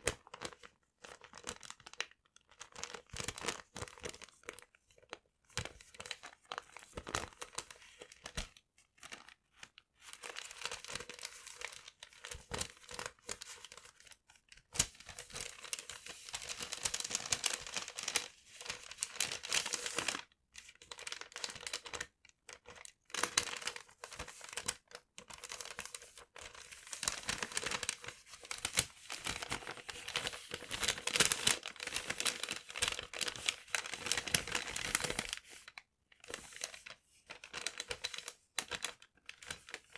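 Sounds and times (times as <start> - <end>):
paper crumpling: 14.8 - 20.2, 22.8 - 39.9.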